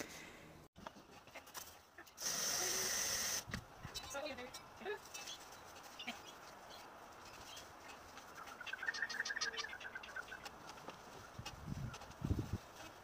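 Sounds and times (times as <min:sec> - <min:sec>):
faint outdoor background noise: 0:00.0 - 0:13.0
bird chattering chirps: 0:08.4 - 0:10.4.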